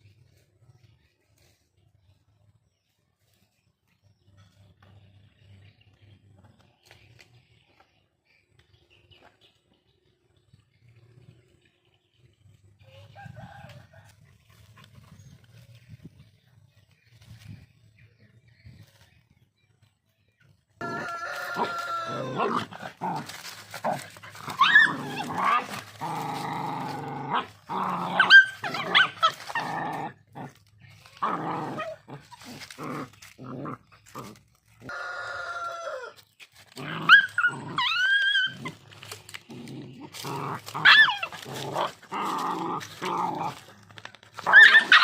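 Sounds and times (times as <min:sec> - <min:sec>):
dogs growling and snarling: 0:14.1 - 0:17.2, 0:20.8 - 0:35.0, 0:36.0 - 0:45.0
dog yelps: 0:24.5 - 0:25.6, 0:28.2 - 0:29.5, 0:37.1 - 0:38.8, 0:40.8 - 0:41.4, 0:44.4 - 0:45.0.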